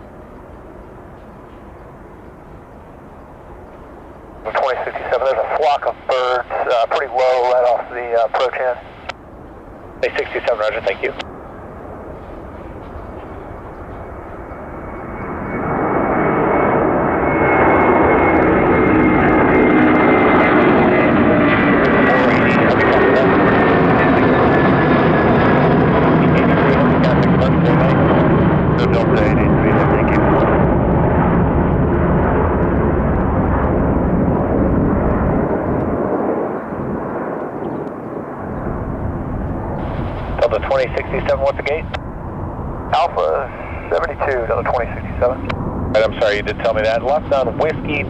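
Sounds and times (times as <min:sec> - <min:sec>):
jet engines at high power: 0:00.0 - 0:48.0.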